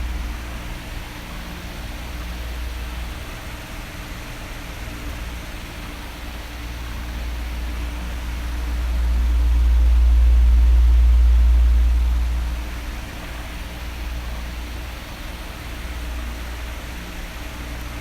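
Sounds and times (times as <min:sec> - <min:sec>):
deep rumble of air: 0:00.0 - 0:03.0, 0:07.1 - 0:14.9
electric fan running: 0:00.0 - 0:18.0.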